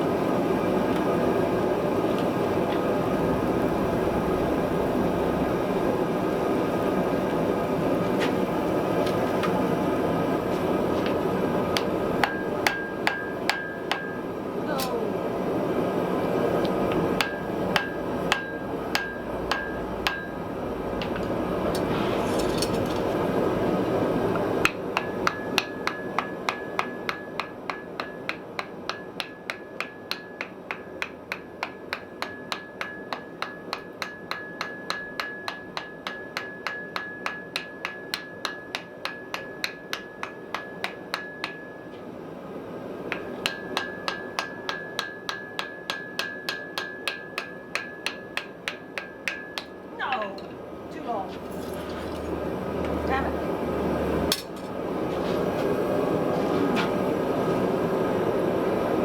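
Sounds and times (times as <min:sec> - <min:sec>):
hammer striking iron on anvil: 0:11.7 - 0:15.0, 0:16.9 - 0:23.1, 0:24.4 - 0:42.0, 0:43.0 - 0:50.5.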